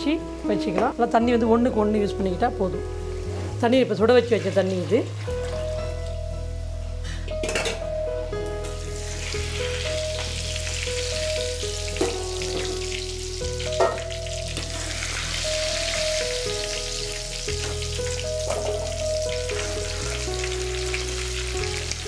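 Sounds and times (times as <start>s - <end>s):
background music: 0.0s - 22.0s
food sizzling in oil: 4.3s - 6.2s, 8.6s - 22.0s.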